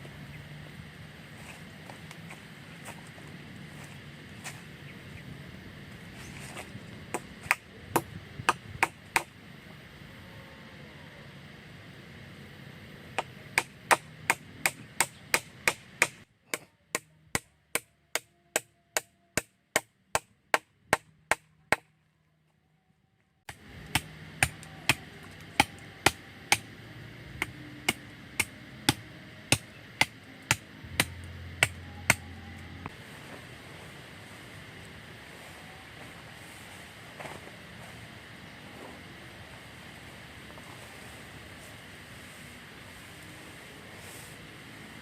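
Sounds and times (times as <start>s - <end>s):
blade chopping wood: 27.4s - 32.2s.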